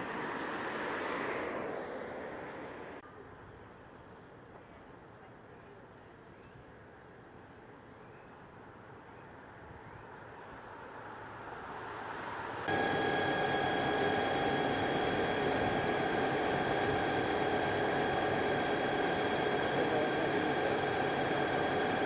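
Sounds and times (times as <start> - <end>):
high whine: 12.7 - 22.0
vehicle engine running: 12.7 - 22.0.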